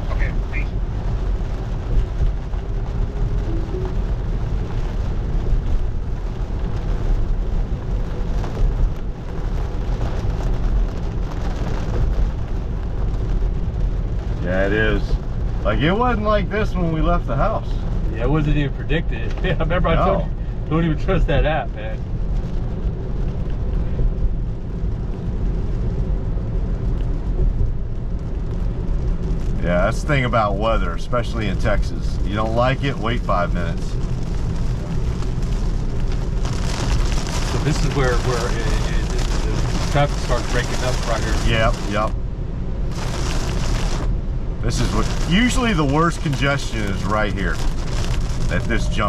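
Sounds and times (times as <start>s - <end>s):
heavy rain on car roof: 0.0s - 49.0s
tyres rumbling on wet road: 0.0s - 49.0s.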